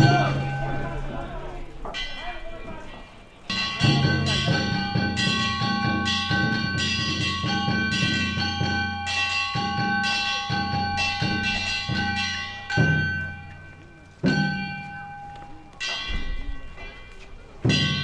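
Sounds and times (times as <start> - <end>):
bronze gongs ringing: 0.0 - 18.0
drum beat: 3.5 - 16.7, 17.6 - 18.0.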